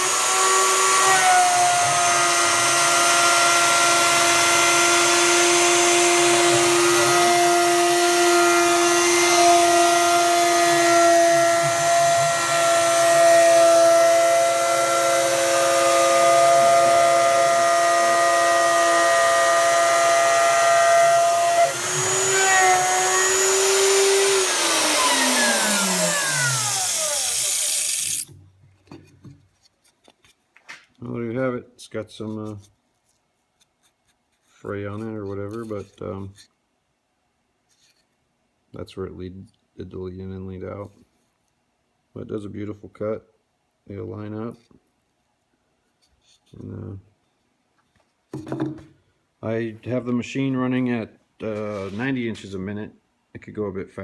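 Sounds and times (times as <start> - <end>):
router motor whining while cutting wood: 0.0 - 28.3
router winding down: 0.0 - 28.3.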